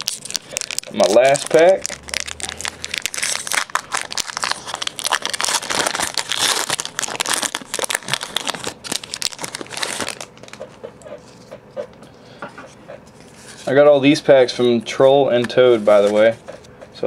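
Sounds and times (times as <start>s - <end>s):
foil wrapper tearing and crinkling: 0.0s - 10.6s.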